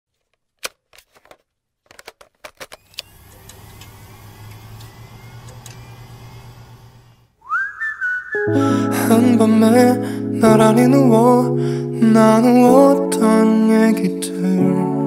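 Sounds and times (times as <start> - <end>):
tone gliding up: 7.4 - 10.0
music: 8.4 - 15.0.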